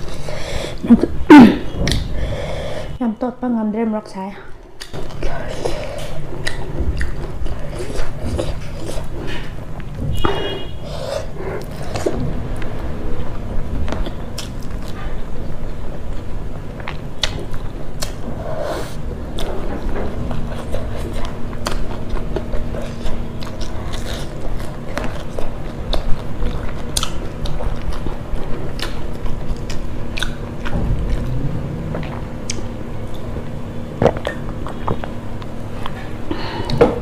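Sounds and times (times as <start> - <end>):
person chewing with wet clicks: 4.8 - 10.4, 13.9 - 36.0.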